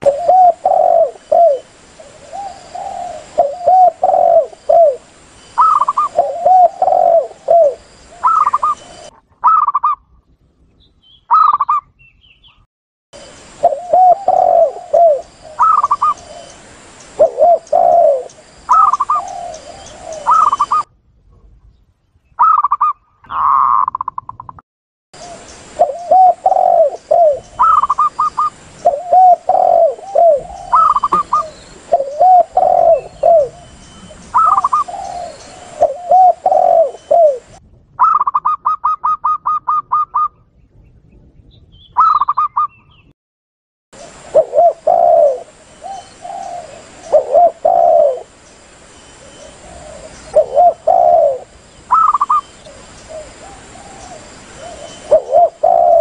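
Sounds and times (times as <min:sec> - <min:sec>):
doves cooing: 0:00.0 - 0:10.0, 0:13.5 - 0:20.9, 0:22.4 - 0:24.2, 0:25.2 - 0:40.3, 0:44.0 - 0:48.4, 0:49.1 - 0:56.0
quick high bird notes: 0:30.8 - 0:31.6.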